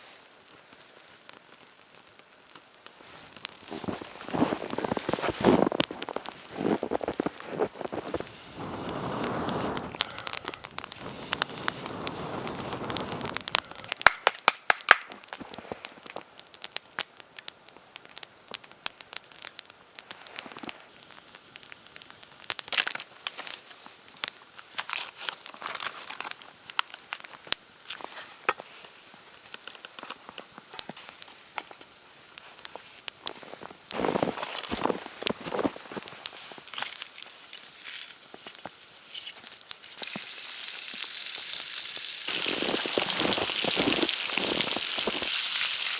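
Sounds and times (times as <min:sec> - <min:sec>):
campfire crackling and popping: 0:00.0 - 0:45.9
dense rustling: 0:03.1 - 0:13.5.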